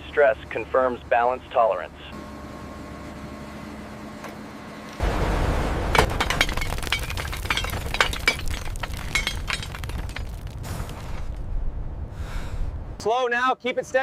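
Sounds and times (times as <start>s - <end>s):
material cracking and crunching: 6.0s - 11.3s
loud low rumble: 10.6s - 13.0s.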